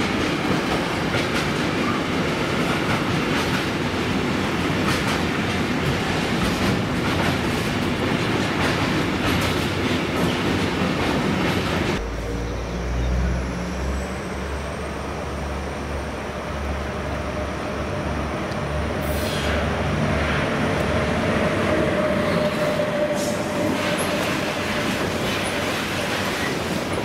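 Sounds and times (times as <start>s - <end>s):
wheels rumbling on rails: 0.0s - 27.0s
locomotive whine: 11.7s - 27.0s.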